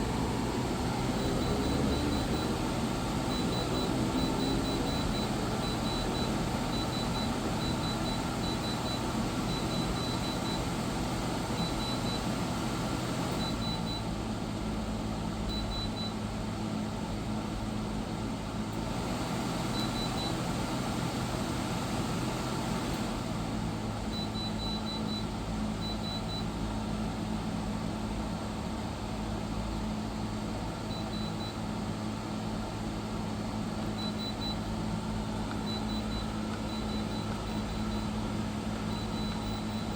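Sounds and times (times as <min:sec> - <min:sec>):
air conditioner humming: 0:00.0 - 0:39.9.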